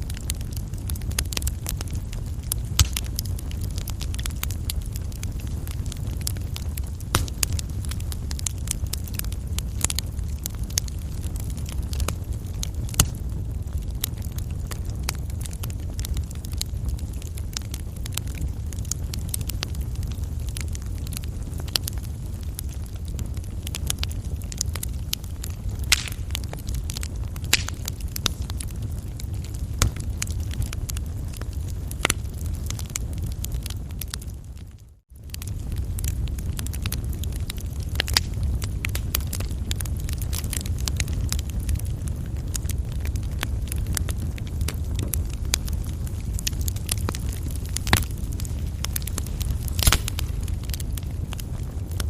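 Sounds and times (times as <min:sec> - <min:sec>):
fire burning in fireplace: 0:00.0 - 0:52.0
fire crackling and popping: 0:00.0 - 0:52.0
low rumble: 0:35.3 - 0:52.0.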